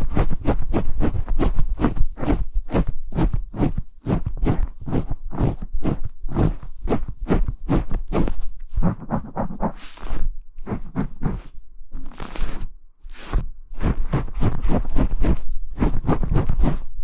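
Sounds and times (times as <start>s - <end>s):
brush scratching a microphone: 0.0s - 17.0s.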